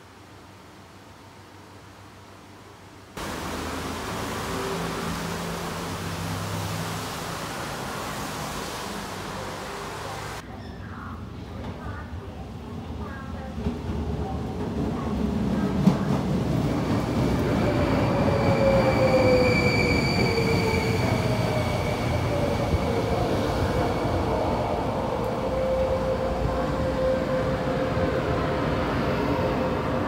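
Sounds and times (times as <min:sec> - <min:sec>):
high brake squeal: 0:17.8 - 0:22.3.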